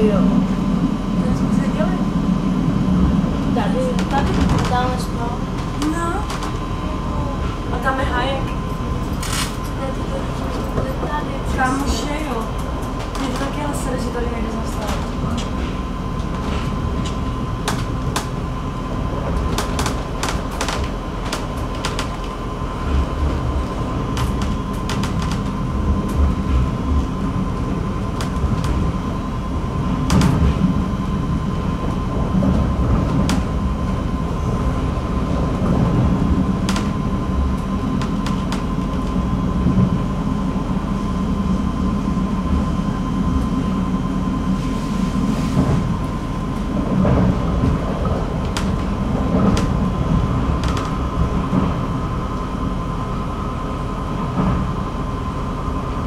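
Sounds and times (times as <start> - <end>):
train low rumble: 0.0 - 56.0.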